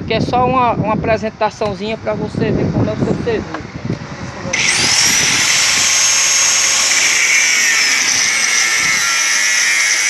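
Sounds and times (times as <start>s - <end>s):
power tool whining: 4.5s - 10.0s.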